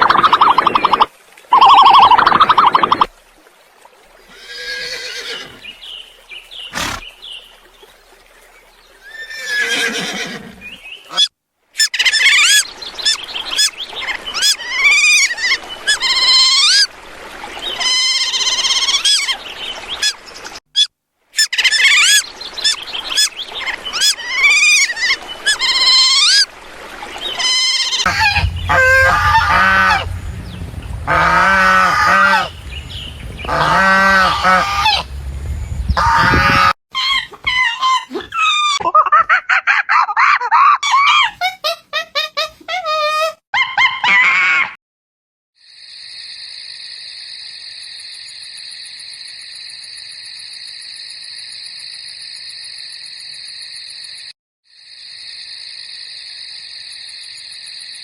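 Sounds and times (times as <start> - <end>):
lower bird calls: 27.3 - 38.0
shrill chirping bird calls: 27.4 - 36.3
steady low hum: 28.1 - 36.0.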